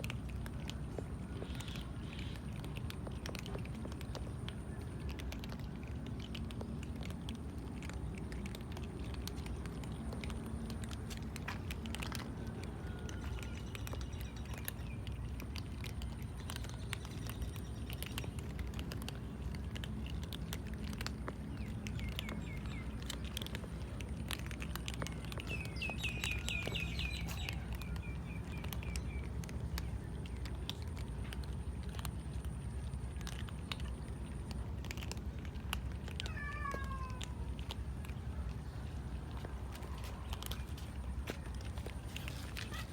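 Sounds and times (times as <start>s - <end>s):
cats eating crunches: 0.0s - 42.9s
bird chirps: 25.2s - 29.3s.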